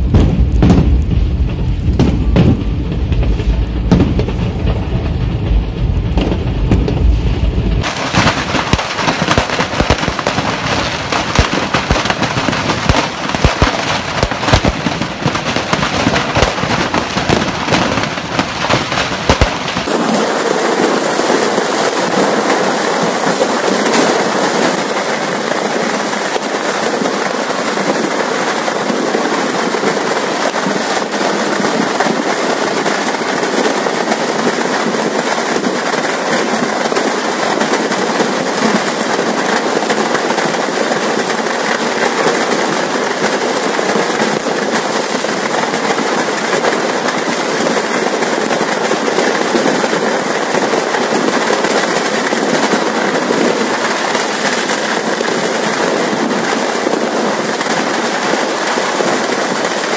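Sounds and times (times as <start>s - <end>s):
fireworks banging and crackling: 0.0s - 59.9s.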